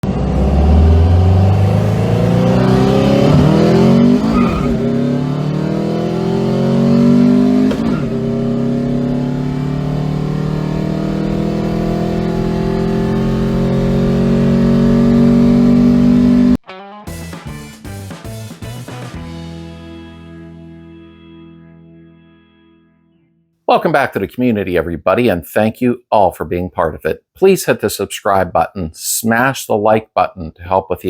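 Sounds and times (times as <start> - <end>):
car engine accelerating: 0.0 - 16.6.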